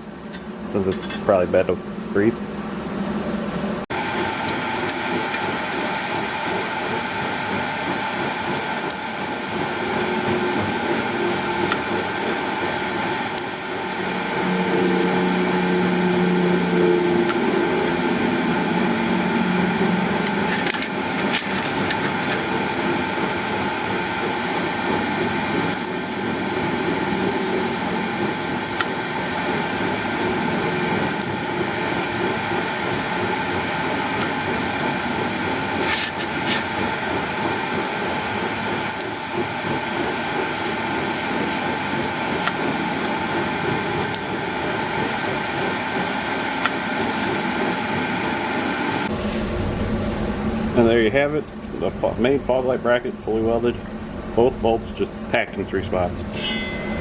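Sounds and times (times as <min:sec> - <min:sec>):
steady background hum: 0:00.0 - 0:57.0
welding arc crackling: 0:08.7 - 0:12.4, 0:13.0 - 0:49.1.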